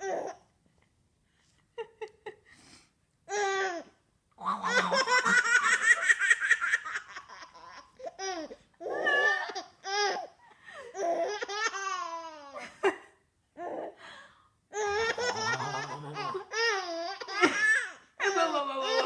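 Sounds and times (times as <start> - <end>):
baby laughing: 4.6 - 10.3, 14.8 - 18.0.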